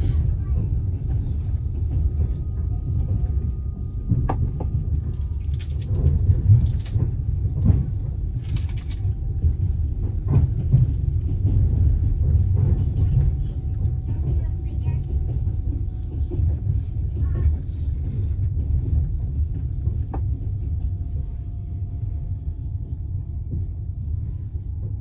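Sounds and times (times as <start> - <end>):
train coach rumble: 0.0 - 25.0.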